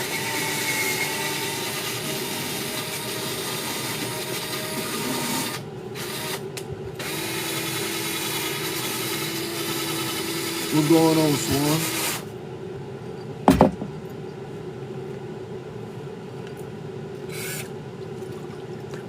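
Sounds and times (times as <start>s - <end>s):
handheld power tool running: 7.0s - 12.2s.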